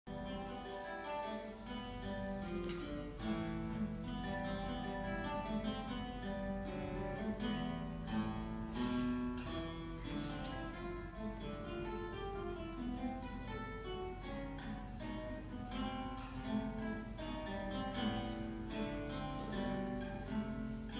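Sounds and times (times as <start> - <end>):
classical guitar playing: 0.1 - 20.9.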